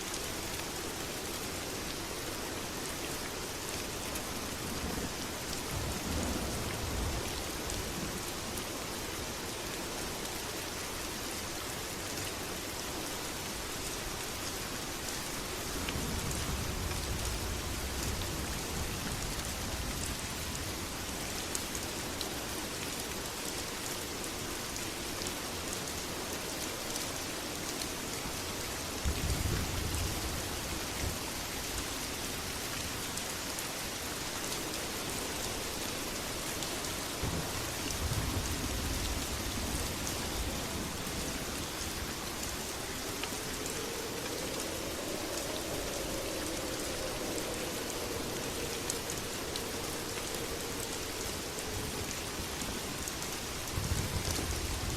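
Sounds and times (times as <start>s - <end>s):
heavy rain: 0.0s - 54.9s
distant thunder rumbling: 37.2s - 41.4s.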